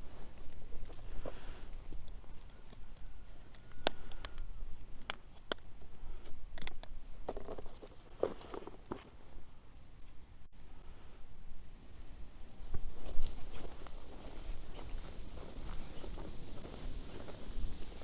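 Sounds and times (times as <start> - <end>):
wind buffeting microphone: 11.9 - 18.0.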